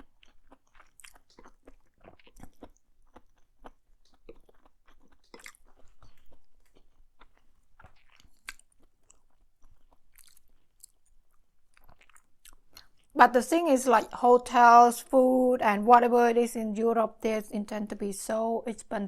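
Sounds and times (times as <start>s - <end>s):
chewing with wet mouth clicks: 0.0s - 13.2s.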